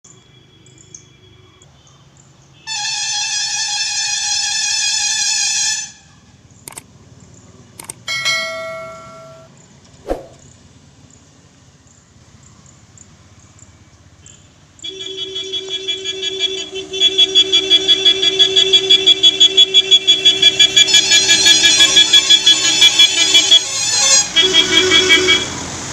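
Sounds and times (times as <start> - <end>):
short clicks: 6.6 - 6.9, 7.8 - 8.1
bell-like chime: 8.1 - 9.5
held electronic tone: 8.1 - 9.5.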